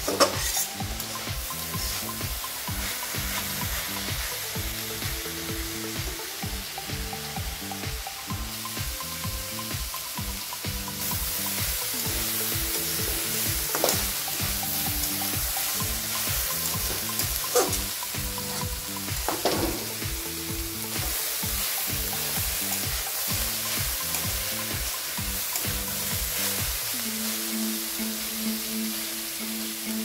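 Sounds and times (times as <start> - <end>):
spatula scraping a pan: 0.0 - 4.4
vegetables sizzling in a pan: 0.0 - 30.0.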